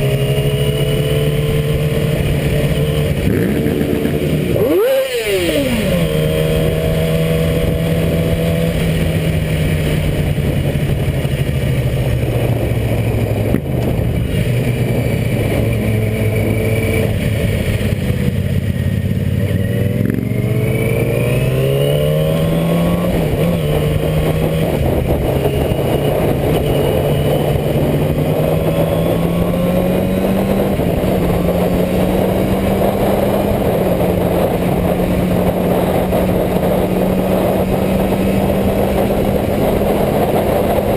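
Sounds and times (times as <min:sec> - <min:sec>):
motorcycle engine running: 0:00.0 - 0:40.9
steady rush of noise: 0:00.0 - 0:40.9.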